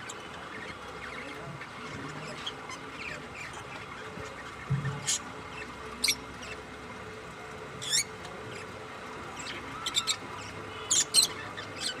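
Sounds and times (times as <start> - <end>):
budgerigars chirping: 0.0 - 6.6, 9.4 - 12.0.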